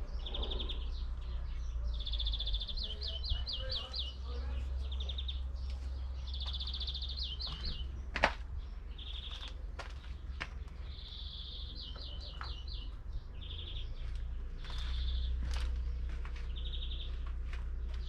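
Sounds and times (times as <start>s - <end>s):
songbird trilling: 0.0s - 8.1s, 8.8s - 9.6s
steady low rumble: 0.0s - 18.0s.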